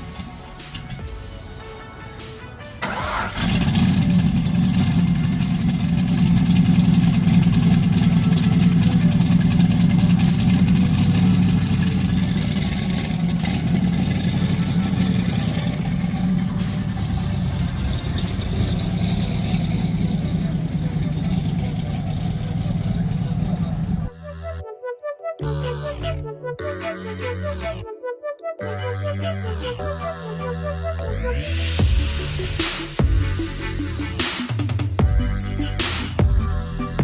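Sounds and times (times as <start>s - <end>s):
car engine idling: 0.0s - 24.1s.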